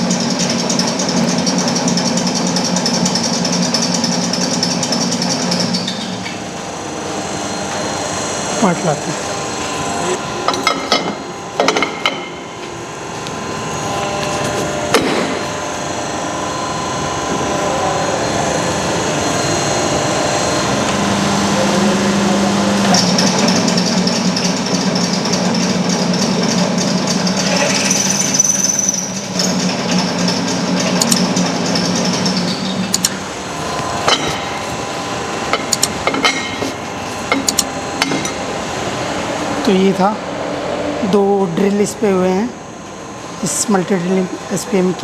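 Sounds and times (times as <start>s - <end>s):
high whine of drills cutting: 0.0s - 25.9s, 26.6s - 45.0s
drilling machine humming: 0.0s - 45.0s
sharp knocks and clicks: 35.5s - 38.4s.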